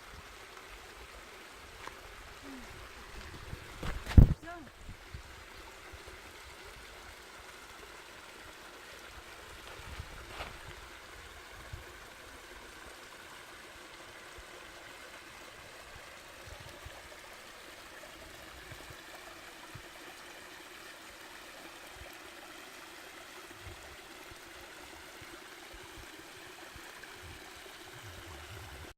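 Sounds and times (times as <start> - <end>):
stream flowing: 0.0 - 28.9
wind buffeting microphone: 2.6 - 5.4, 9.8 - 10.8.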